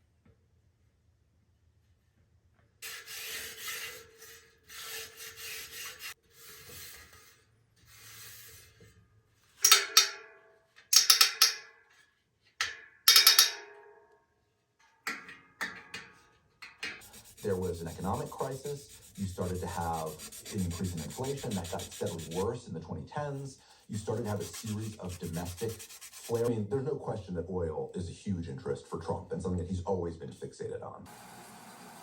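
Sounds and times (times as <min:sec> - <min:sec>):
abrasive rubbing strokes: 0:17.0 - 0:22.6, 0:23.2 - 0:26.6.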